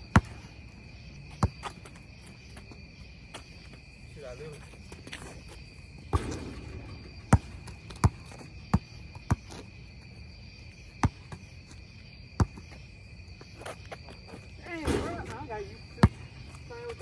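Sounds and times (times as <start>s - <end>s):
basketball bouncing: 0.0s - 0.6s, 1.3s - 2.0s, 6.0s - 9.7s, 11.0s - 11.5s, 12.4s - 12.8s, 14.8s - 17.0s
insect trill: 0.0s - 17.0s.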